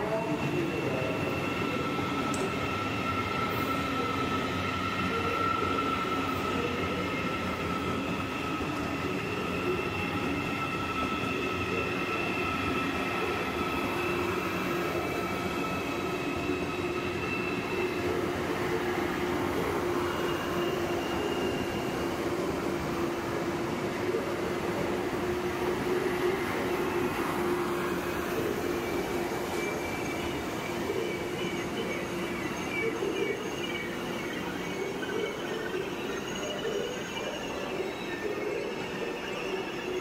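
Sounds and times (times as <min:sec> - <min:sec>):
high whining tones: 0:00.0 - 0:40.0.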